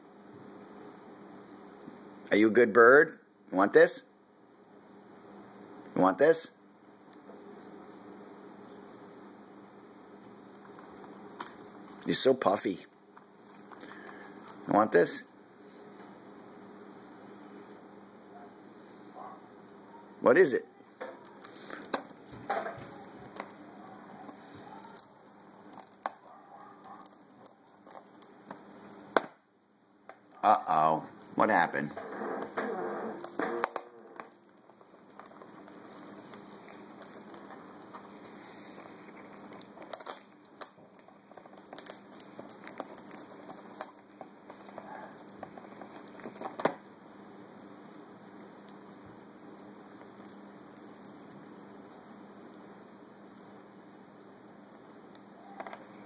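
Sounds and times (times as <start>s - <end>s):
beak tapping on plastic wrapper: 24.2s - 29.3s, 33.2s - 46.8s.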